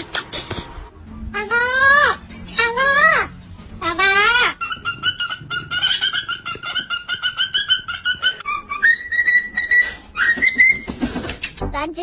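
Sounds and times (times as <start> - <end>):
parrot calling: 1.4 - 11.0.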